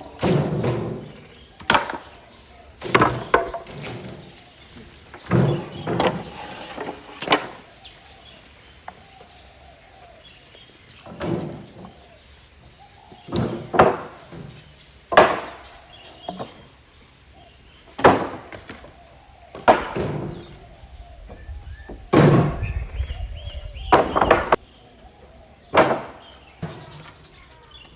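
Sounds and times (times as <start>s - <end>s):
timber thrown onto pile: 0.1s - 2.2s, 2.8s - 7.7s, 13.3s - 15.6s, 18.0s - 18.8s.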